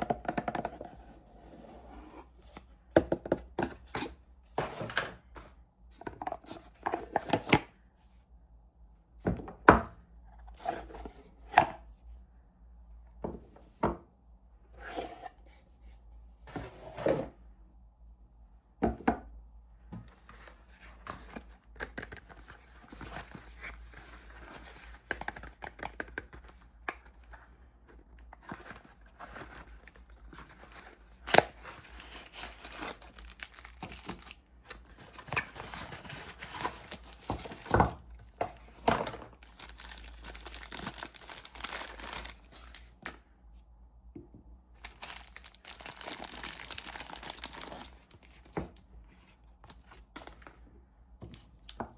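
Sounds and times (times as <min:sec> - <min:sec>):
packaging tearing and crinkling: 0:31.2 - 0:34.4, 0:35.4 - 0:38.0, 0:39.3 - 0:43.0, 0:44.8 - 0:48.4.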